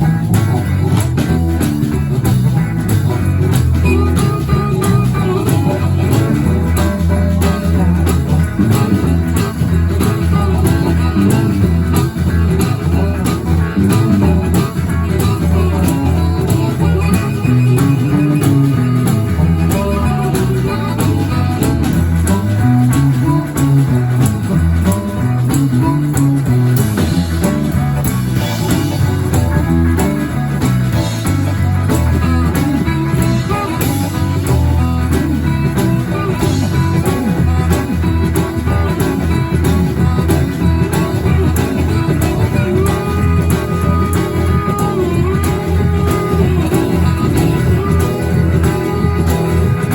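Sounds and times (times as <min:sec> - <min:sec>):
bass line: 0:00.0 - 0:49.9
guitar: 0:00.0 - 0:49.9
live blues band playing: 0:00.0 - 0:49.9.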